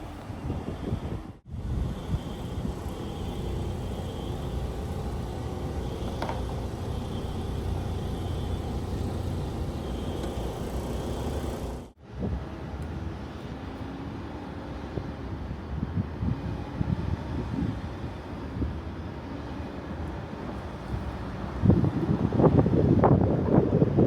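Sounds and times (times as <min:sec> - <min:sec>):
faint hum: 0:00.0 - 0:12.0
steady low rumble: 0:01.3 - 0:12.0.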